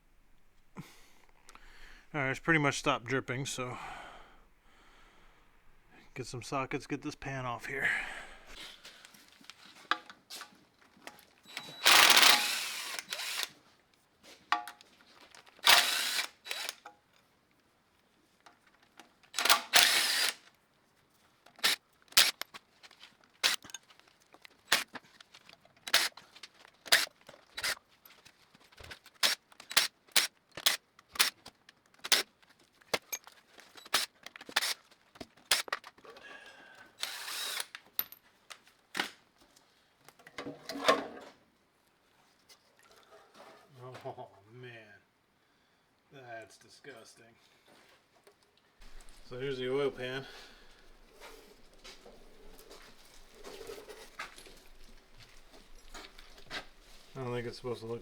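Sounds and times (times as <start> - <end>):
power tool bursts: 11.5 - 13.6, 15.6 - 16.8, 19.4 - 20.4, 21.6 - 22.4, 25.9 - 26.1, 33.9 - 34.8, 37.0 - 37.8.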